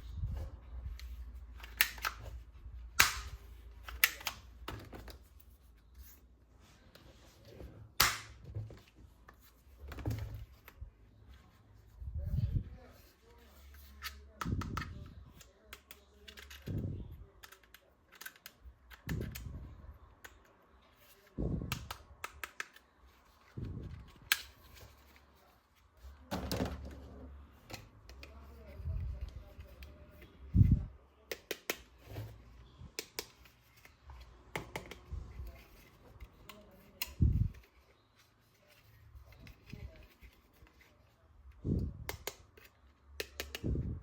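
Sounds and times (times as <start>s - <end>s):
plastic toy parts clicking: 17.4s - 19.5s.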